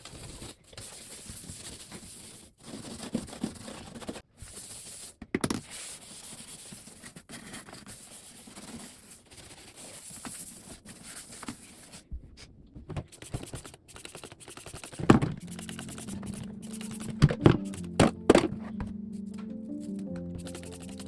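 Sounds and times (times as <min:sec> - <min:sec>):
background music: 0:15.4 - 0:21.0.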